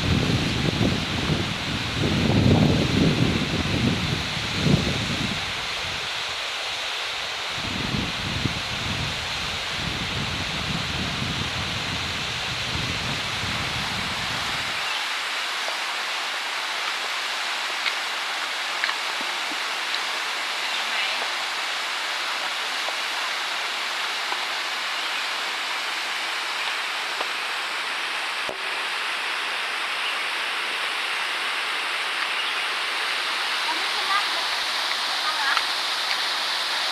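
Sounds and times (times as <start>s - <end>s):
waterfall rushing: 0.0s - 36.9s.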